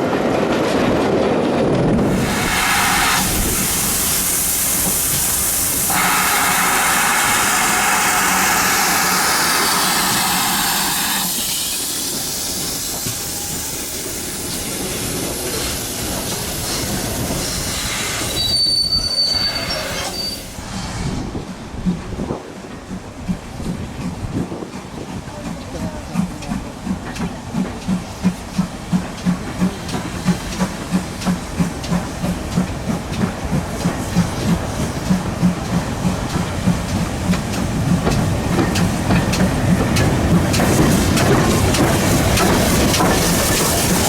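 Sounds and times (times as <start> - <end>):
train wheels rushing on rails: 0.0 - 44.0
high-pitched wheel squeal: 18.2 - 20.6.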